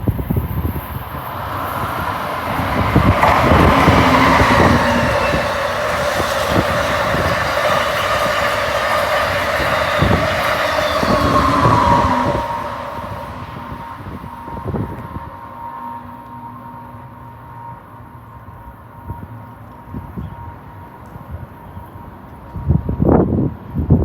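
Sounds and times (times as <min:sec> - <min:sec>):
high whine of locomotive: 0:00.0 - 0:24.0
train wheels rumbling on rails: 0:00.0 - 0:24.0
wheels clicking over rail joints: 0:00.1 - 0:15.4.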